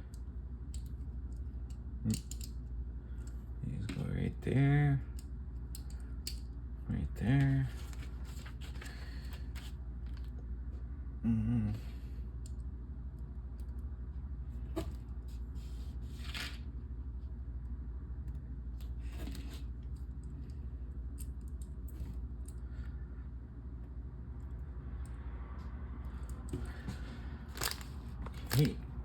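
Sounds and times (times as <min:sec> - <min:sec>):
low hum: 0:00.0 - 0:29.0
plastic pieces clicking: 0:01.7 - 0:02.6
plastic pieces snapping: 0:02.1 - 0:02.6
person murmuring: 0:06.9 - 0:07.8, 0:11.2 - 0:12.1.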